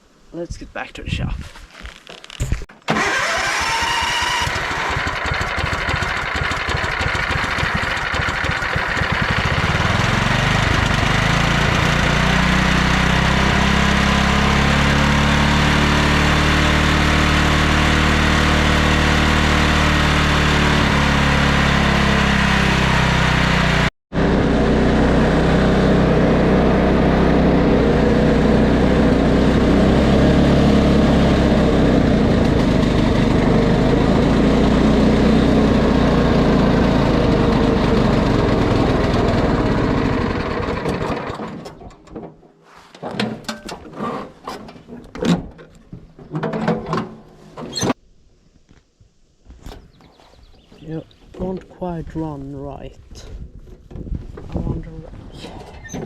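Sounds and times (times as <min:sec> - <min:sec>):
lawn tractor engine running: 0:02.9 - 0:42.2.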